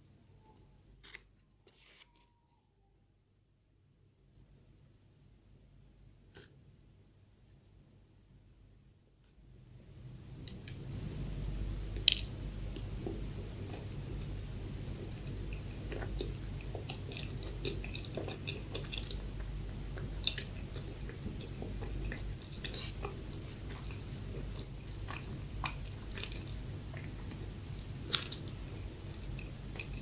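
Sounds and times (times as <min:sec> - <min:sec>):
steady low hum: 0:00.0 - 0:30.0
chewing soft bread: 0:10.4 - 0:30.0.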